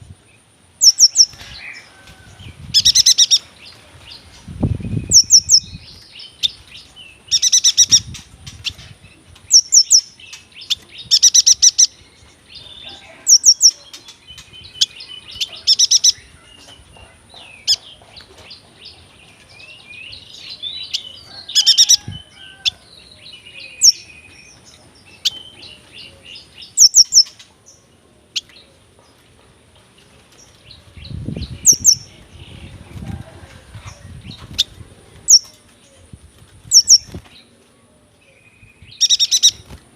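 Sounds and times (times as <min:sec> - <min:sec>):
bird chirping and twittering: 0:00.3 - 0:29.2, 0:30.0 - 0:37.6, 0:38.2 - 0:39.8
low fluttering rustle: 0:29.1 - 0:37.9.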